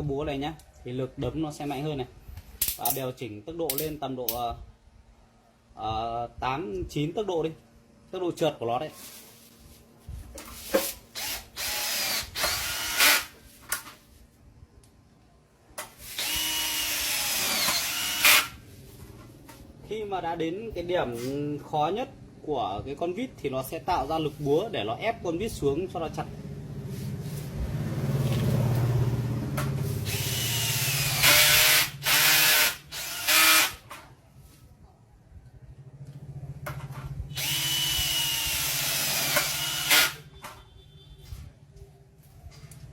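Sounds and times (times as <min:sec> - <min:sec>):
cordless drill driving screws: 0:11.1 - 0:13.4, 0:16.1 - 0:18.6, 0:30.0 - 0:33.8, 0:37.3 - 0:40.2.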